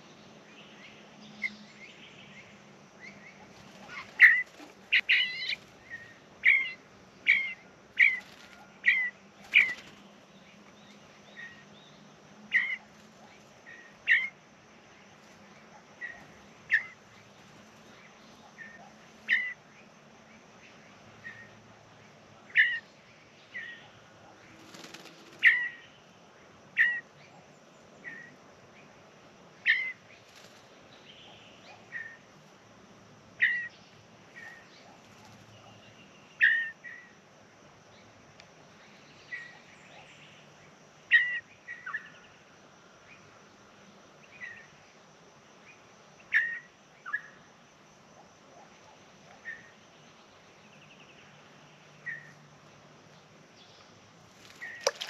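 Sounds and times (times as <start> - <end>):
bird giving sharp calls: 3.7 - 9.9.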